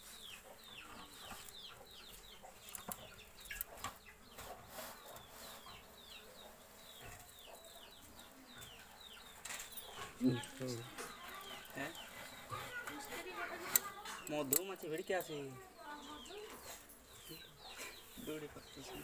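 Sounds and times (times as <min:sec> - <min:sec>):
birds chirping faintly: 0:00.0 - 0:19.0
sharp clicks: 0:13.6 - 0:14.9.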